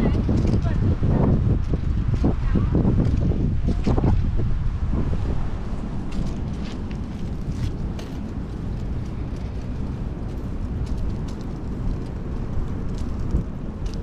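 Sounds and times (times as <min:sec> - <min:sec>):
bicycle road noise: 0:00.0 - 0:14.0
wind rumble on microphone: 0:00.0 - 0:14.0.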